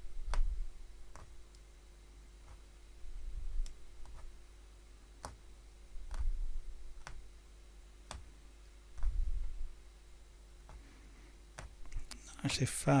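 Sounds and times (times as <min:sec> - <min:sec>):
punch needle clicking through fabric: 0:00.3 - 0:01.6, 0:05.2 - 0:05.4, 0:06.0 - 0:07.3, 0:08.0 - 0:08.3
dull low thuds: 0:08.9 - 0:09.8.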